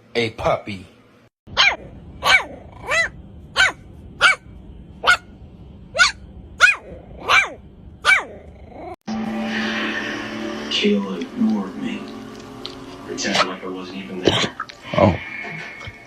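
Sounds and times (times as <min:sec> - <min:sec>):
dog barking: 0:01.5 - 0:05.3, 0:05.9 - 0:08.4.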